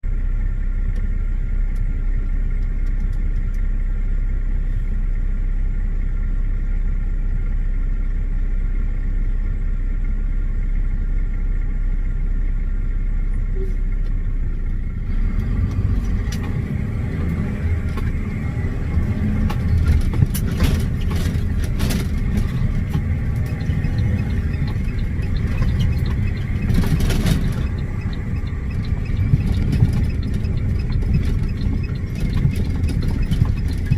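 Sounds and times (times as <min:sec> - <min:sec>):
truck engine rumbling: 0:00.0 - 0:33.9
knocks and clatters: 0:15.4 - 0:33.9.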